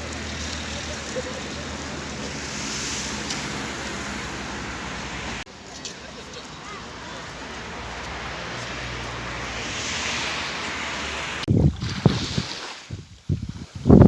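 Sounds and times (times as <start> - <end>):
surf breaking on beach: 0.0 - 5.5, 6.7 - 13.1
wind buffeting microphone: 7.6 - 14.0.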